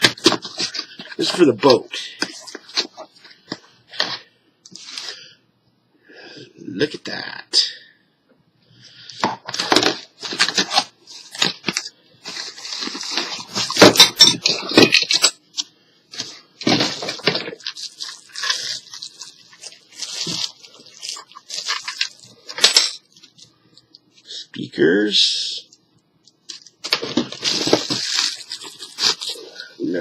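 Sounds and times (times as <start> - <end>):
packaging rustling and crinkling: 0.0 - 3.7, 9.4 - 15.2, 16.1 - 23.9, 26.4 - 30.0.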